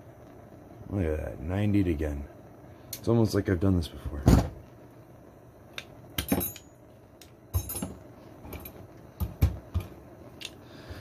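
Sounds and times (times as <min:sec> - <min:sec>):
metal tools clinking: 0:06.2 - 0:06.8, 0:07.6 - 0:08.8.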